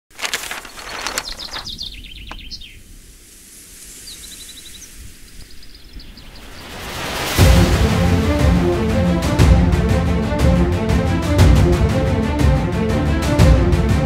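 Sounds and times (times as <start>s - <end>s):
outdoor background hiss: 0.2s - 7.4s
birds chirping and trilling: 0.4s - 7.3s.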